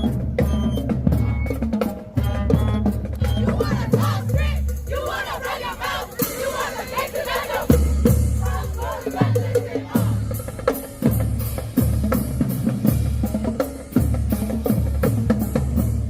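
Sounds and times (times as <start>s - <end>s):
marching band playing: 0.0s - 16.0s
voices shouting: 2.2s - 10.3s.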